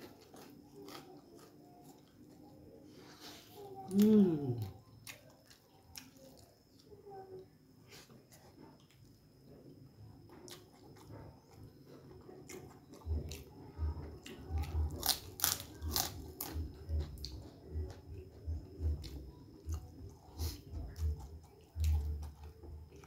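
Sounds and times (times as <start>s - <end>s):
cracker crunching: 0.0s - 2.7s, 14.2s - 23.0s
close-up chewing: 0.0s - 2.9s, 3.6s - 7.0s, 8.0s - 23.0s.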